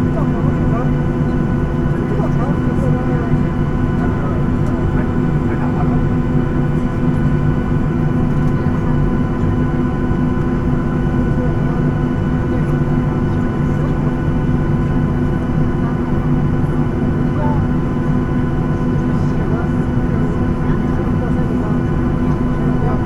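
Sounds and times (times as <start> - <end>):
jet engines idling: 0.0 - 23.0.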